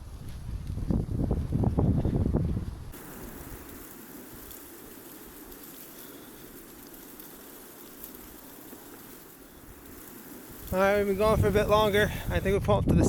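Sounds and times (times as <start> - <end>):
outdoor hiss: 2.9 - 12.8
faint ticks: 3.0 - 10.9.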